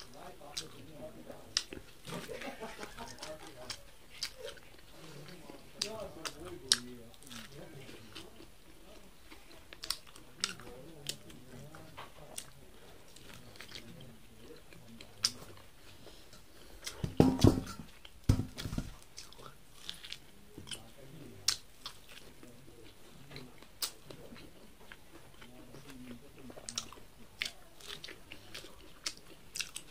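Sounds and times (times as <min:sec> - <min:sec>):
chewing corn kernels: 0:00.0 - 0:17.2, 0:17.9 - 0:29.9
dull thumps: 0:17.0 - 0:19.0.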